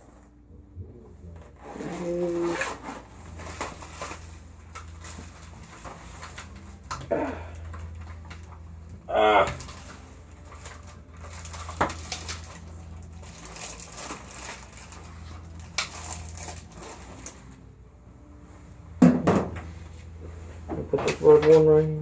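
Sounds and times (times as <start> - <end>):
steady low hum: 0.0 - 22.0
rustles and clicks: 1.3 - 8.9, 9.5 - 17.6.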